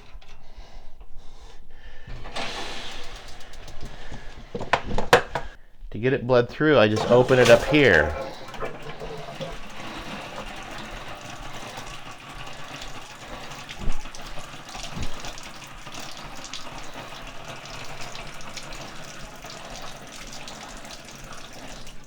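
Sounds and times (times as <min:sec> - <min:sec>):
pipe knocks: 0:03.5 - 0:05.6
water running from a tap: 0:06.9 - 0:22.0.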